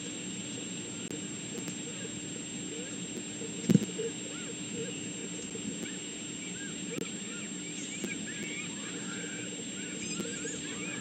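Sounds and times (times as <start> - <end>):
electrical hum: 0.0 - 11.0
birds chirping: 0.5 - 11.0.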